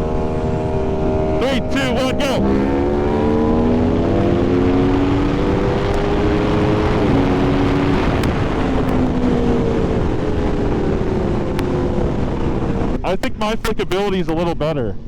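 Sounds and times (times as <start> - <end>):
motorcycle engine accelerating: 0.0 - 13.2
wind rushing: 0.0 - 14.0.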